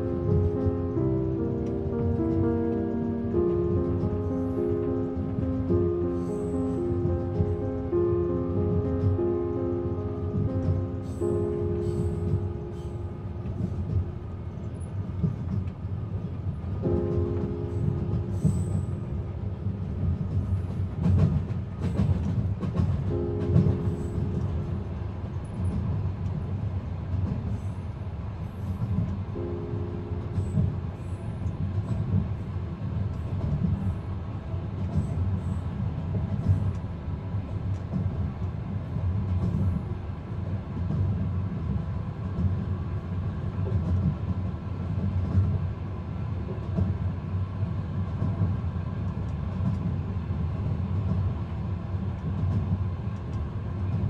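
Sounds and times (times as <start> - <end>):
moving train rumble: 0.0 - 54.0
faint light ticks: 52.2 - 53.4.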